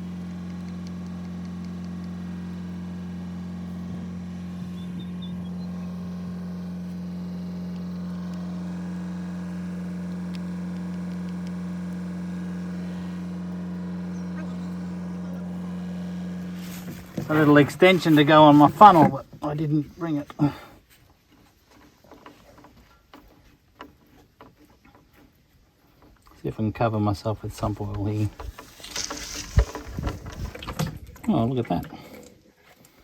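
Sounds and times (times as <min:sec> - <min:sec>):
excavator diesel engine idling: 0:00.0 - 0:20.6.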